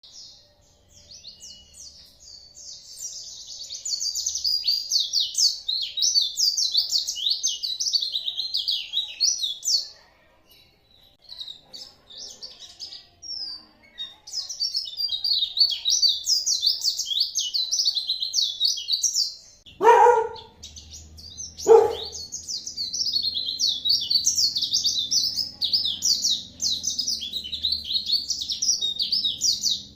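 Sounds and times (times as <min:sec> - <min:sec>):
bird twittering: 0:19.7 - 0:29.9.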